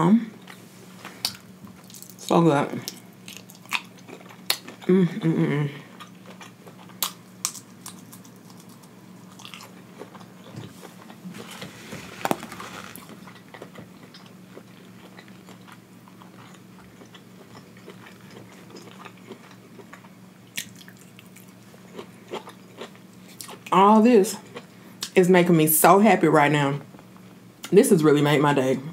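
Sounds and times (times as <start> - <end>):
chewing and biting food: 1.2 - 5.0, 5.9 - 23.7.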